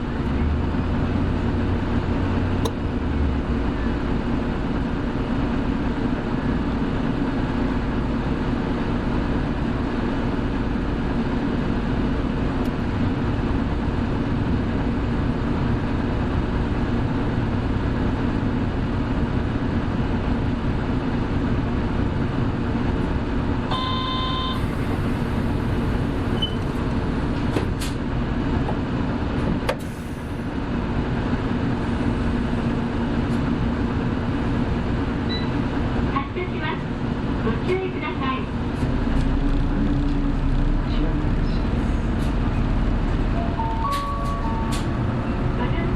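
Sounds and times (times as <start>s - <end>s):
bus engine drone: 0.0s - 45.9s
road noise: 0.0s - 45.9s
short electronic beep: 23.7s - 24.6s.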